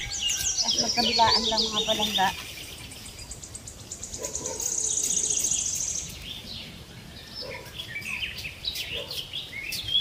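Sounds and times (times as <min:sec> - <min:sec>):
bird chirps: 0:00.0 - 0:10.0.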